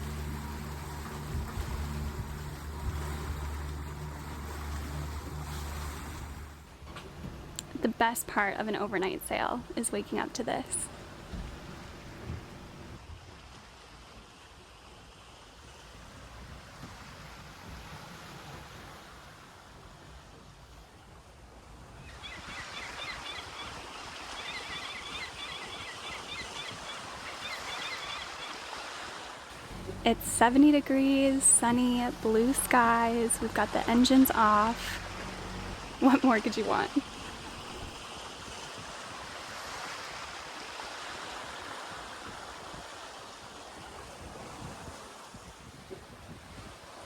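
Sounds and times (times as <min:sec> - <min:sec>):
water washing: 0:00.0 - 0:13.0, 0:29.5 - 0:41.9
birds chirping: 0:22.1 - 0:28.7
wind on microphone: 0:43.7 - 0:47.0.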